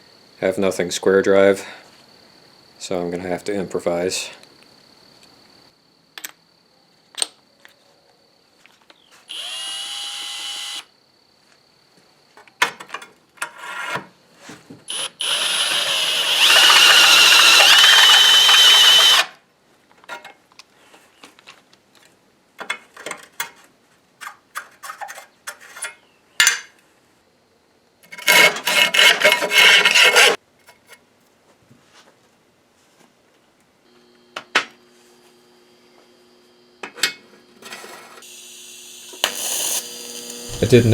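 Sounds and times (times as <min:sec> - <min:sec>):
power drill whining: 0:09.3 - 0:10.9, 0:14.9 - 0:19.3, 0:38.2 - 0:40.9.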